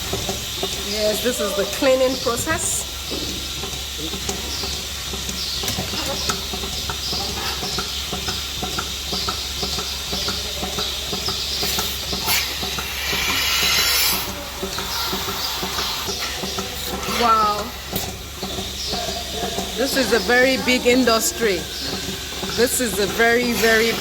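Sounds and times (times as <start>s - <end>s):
machinery clicking and clattering: 0.0s - 24.0s
machinery humming: 0.0s - 24.0s
loud hiss: 11.6s - 14.3s.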